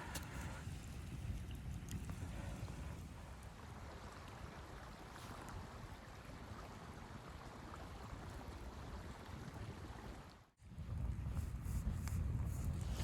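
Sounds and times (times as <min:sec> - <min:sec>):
blizzard wind: 0:10.6 - 0:13.0.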